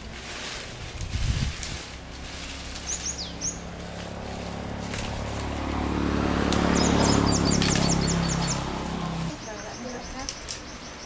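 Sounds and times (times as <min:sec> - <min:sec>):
bird chirps: 0:02.8 - 0:03.7, 0:06.6 - 0:08.7, 0:09.3 - 0:11.0.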